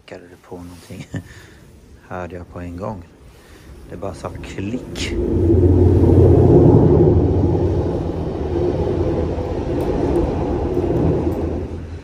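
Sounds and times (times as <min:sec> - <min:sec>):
train rumbling over bridge: 0:02.5 - 0:12.0.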